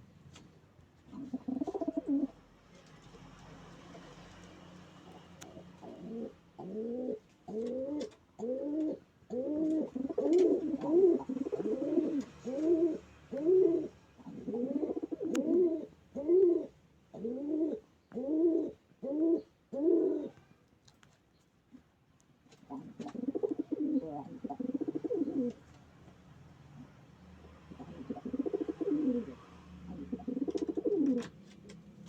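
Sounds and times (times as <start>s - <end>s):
pigeon cooing: 1.1s - 2.5s, 5.1s - 20.5s, 22.7s - 25.7s, 26.8s - 31.4s.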